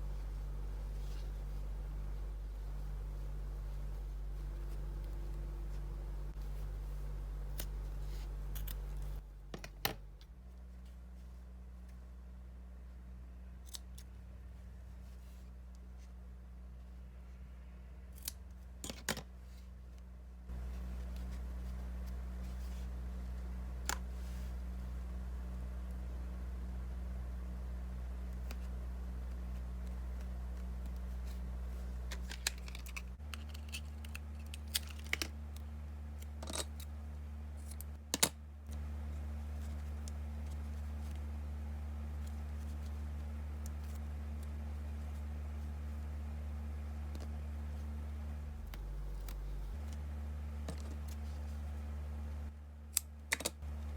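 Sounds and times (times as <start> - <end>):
rustling of felt: 0.0 - 9.2
steady low hum: 0.0 - 53.9.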